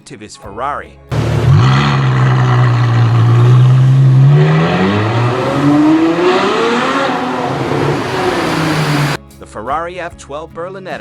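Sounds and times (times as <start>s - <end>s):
car engine accelerating hard: 1.1s - 9.2s.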